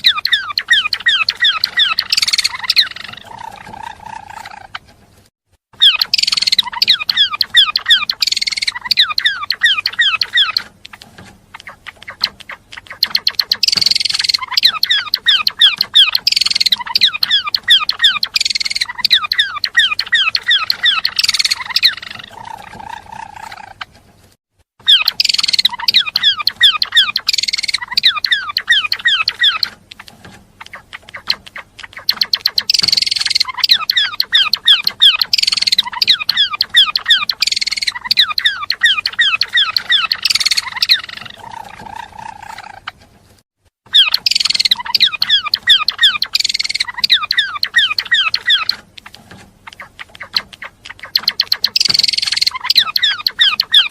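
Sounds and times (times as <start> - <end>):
songbird singing rapid chirps: 0.0 - 5.0, 5.7 - 24.0, 24.8 - 43.1, 43.8 - 53.9.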